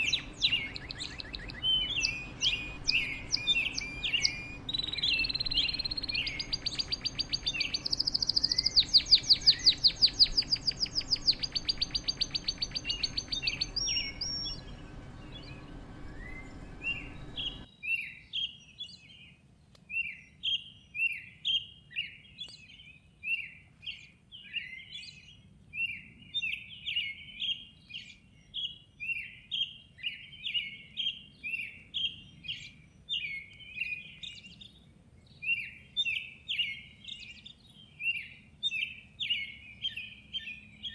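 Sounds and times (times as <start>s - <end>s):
bird trilling: 0.0s - 17.7s
short bird chirps: 0.0s - 19.2s.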